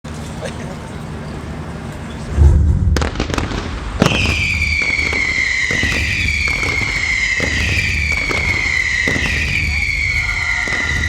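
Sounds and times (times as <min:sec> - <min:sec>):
low rumble of bursts: 0:00.1 - 0:11.0
firework crack: 0:02.3 - 0:11.0
firework pops: 0:02.4 - 0:11.0
firework whistle falling in pitch: 0:04.0 - 0:11.0.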